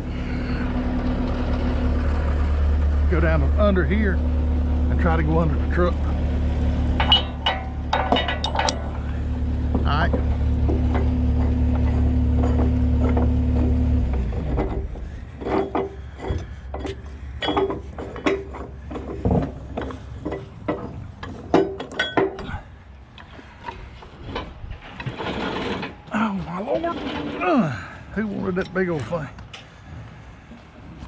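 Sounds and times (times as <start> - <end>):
motor humming: 0.0 - 21.4
metallic chain clanks: 7.0 - 9.2, 10.0 - 13.8, 14.4 - 22.7.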